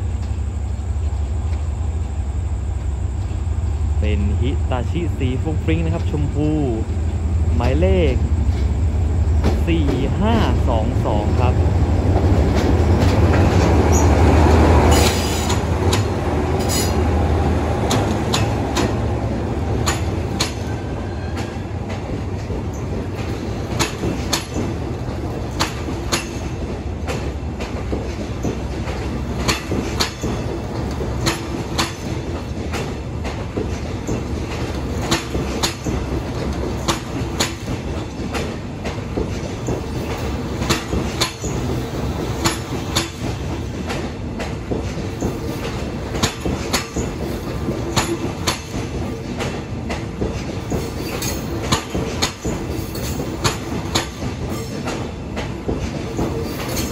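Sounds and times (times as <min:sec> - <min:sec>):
train coaches rumbling: 0:00.0 - 0:56.9
wheel clacks over rail joints: 0:12.2 - 0:17.0, 0:17.8 - 0:19.0, 0:19.7 - 0:56.9.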